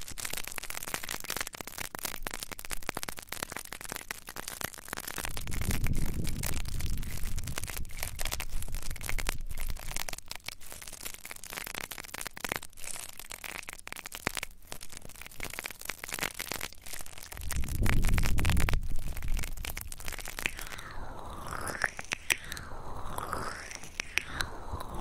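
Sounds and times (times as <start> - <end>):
scratching on microphone: 5.0 - 11.6, 15.5 - 25.0.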